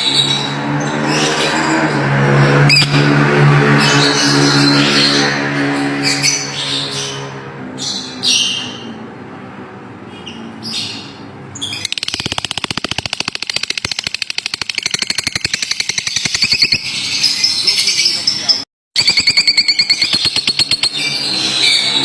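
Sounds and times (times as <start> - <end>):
lovebirds chirping and chattering: 10.2 - 18.6.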